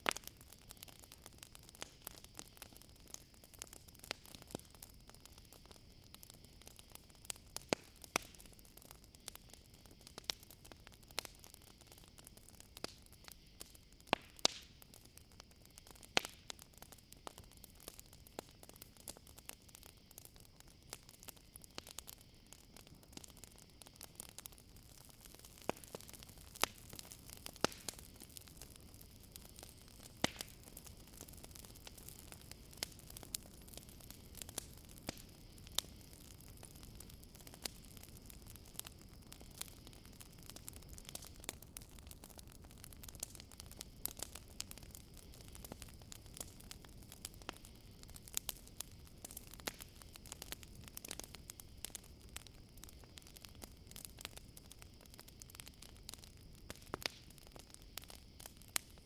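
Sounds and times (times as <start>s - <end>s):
campfire crackling: 0.0s - 59.0s
crickets chirring: 14.8s - 59.0s.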